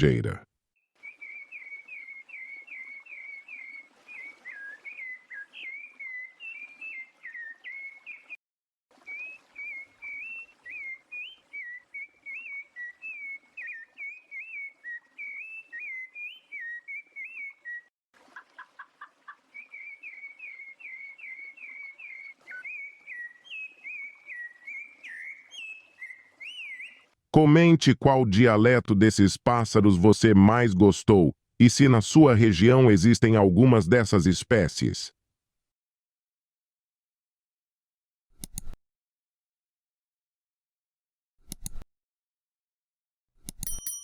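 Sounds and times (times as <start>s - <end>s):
thrush singing whistled notes: 1.0s - 8.3s, 9.0s - 17.9s, 19.6s - 27.1s.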